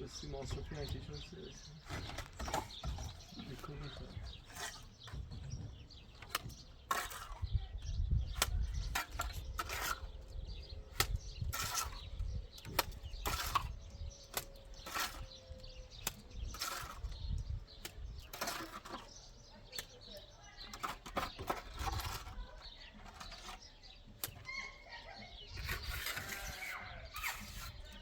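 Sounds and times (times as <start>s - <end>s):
hand tools scraping cement: 0.0s - 24.6s, 25.3s - 28.0s.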